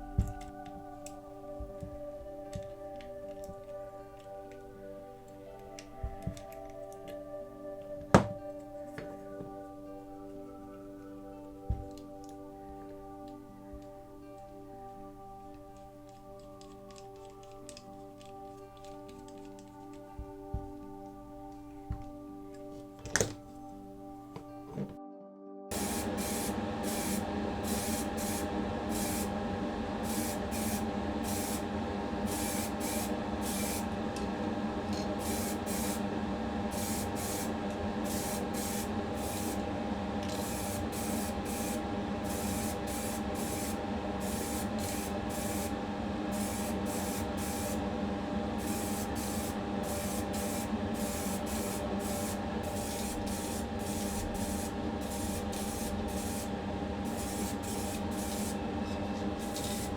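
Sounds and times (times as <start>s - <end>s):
steady mechanical hum: 0.0s - 6.7s, 25.7s - 59.9s
short spray paint hisses: 25.7s - 29.3s, 30.0s - 31.6s, 32.3s - 33.9s, 35.2s - 36.0s, 36.7s - 39.6s, 40.3s - 45.7s, 46.3s - 47.8s, 48.6s - 56.5s, 57.1s - 58.6s, 59.4s - 59.9s.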